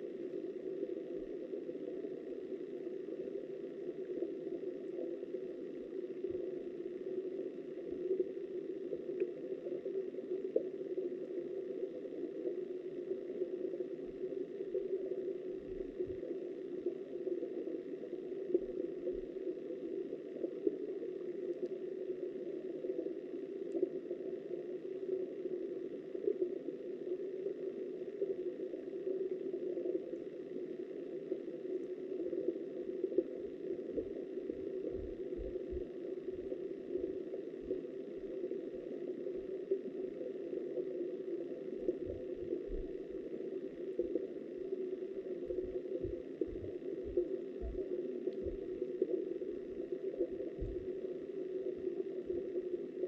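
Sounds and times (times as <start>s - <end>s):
faint crackles: 0.0s - 53.0s
muffled underwater river rushing: 0.0s - 53.0s
faint clicks: 21.4s - 21.8s, 23.0s - 23.9s, 45.4s - 49.2s.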